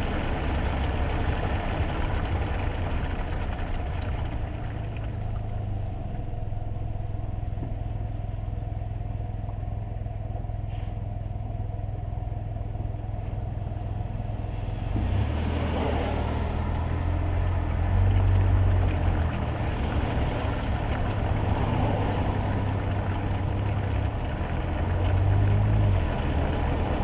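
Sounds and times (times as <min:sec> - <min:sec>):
car engine hum: 0:00.0 - 0:27.0
tyres hissing on wet road: 0:10.7 - 0:11.0, 0:14.6 - 0:17.4, 0:19.3 - 0:27.0.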